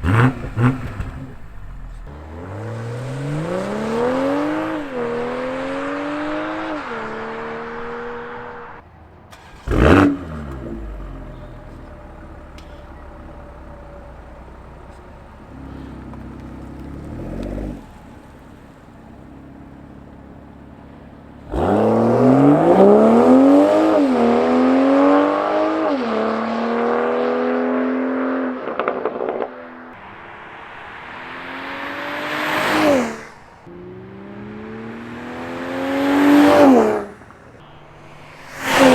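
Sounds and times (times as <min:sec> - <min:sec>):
car exhaust under hard acceleration: 0:00.0 - 0:08.8, 0:09.5 - 0:25.9.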